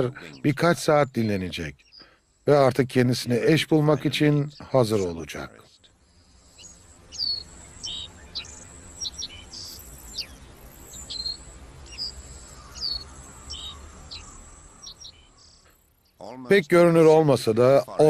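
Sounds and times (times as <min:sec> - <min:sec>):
bird chirps: 0:00.0 - 0:18.0
high-pitched insect drone: 0:06.0 - 0:16.0.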